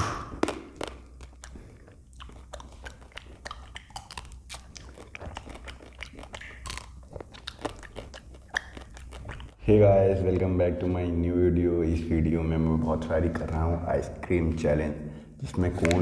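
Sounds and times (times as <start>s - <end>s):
chocolate shell crunching: 0.0s - 9.6s.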